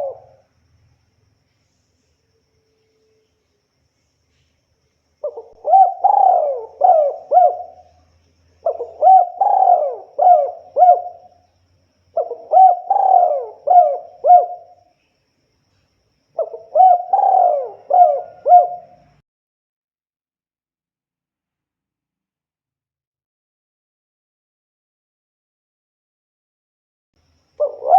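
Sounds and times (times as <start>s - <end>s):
dove cooing: 0.0s - 0.4s, 5.2s - 8.0s, 8.6s - 11.4s, 12.1s - 14.8s, 16.4s - 19.2s, 27.6s - 27.9s.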